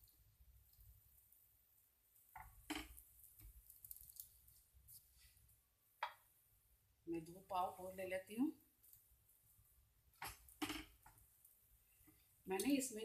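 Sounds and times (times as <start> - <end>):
soft knocks of buns on a griddle: 2.2 - 4.3.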